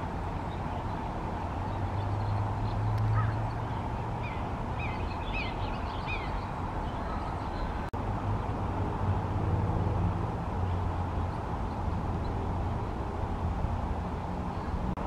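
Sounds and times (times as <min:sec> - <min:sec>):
high bird chirps: 0:02.1 - 0:07.7.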